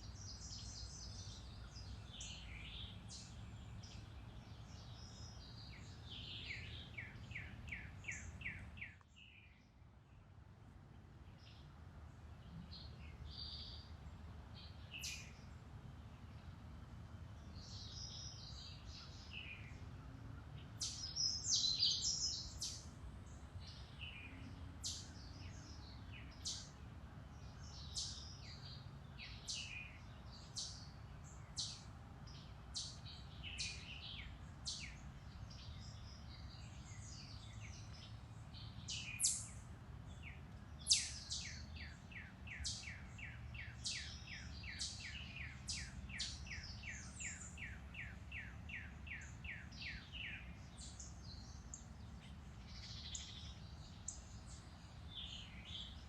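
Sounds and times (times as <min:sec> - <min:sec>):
birds chirping and singing: 0:20.8 - 0:22.9, 0:31.6 - 0:56.0.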